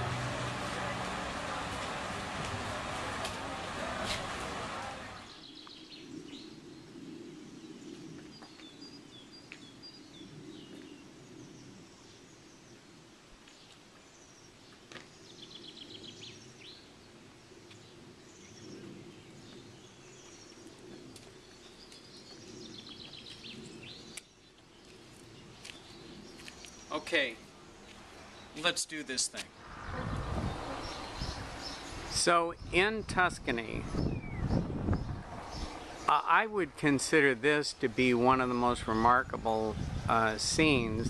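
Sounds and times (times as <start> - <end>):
faint outdoor background noise: 0.0 - 41.0
songbirds singing trilled phrases: 30.2 - 36.4.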